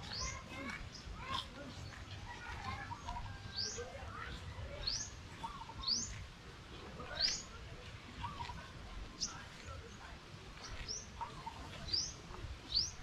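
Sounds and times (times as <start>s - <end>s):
low background noise: 0.0s - 13.0s
bird chirping: 2.8s - 6.2s, 10.6s - 13.0s.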